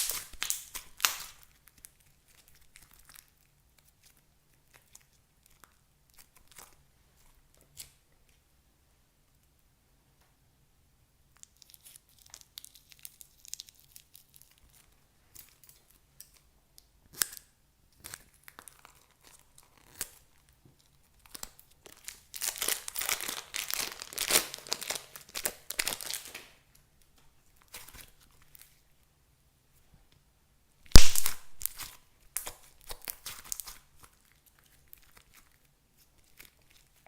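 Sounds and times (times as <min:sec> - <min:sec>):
crinkling and crackling handling noise: 0:18.0 - 0:29.0.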